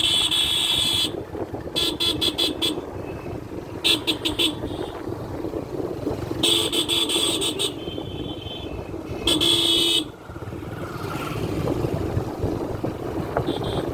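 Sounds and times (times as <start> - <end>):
vehicle horn honking: 0.0 - 1.2, 1.8 - 2.8, 3.8 - 5.0, 6.4 - 10.1, 13.4 - 13.9
motor vehicle rumble: 0.0 - 13.9
road noise: 0.0 - 13.9.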